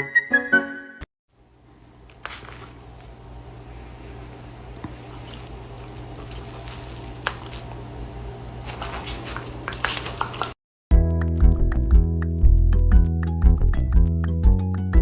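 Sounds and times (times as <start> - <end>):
low room hum: 1.3 - 10.6.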